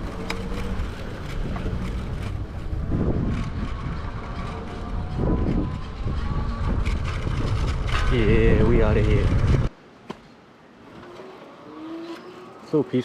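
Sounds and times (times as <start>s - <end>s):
wind buffeting microphone: 0.0s - 9.7s
road noise rumble: 0.0s - 13.0s.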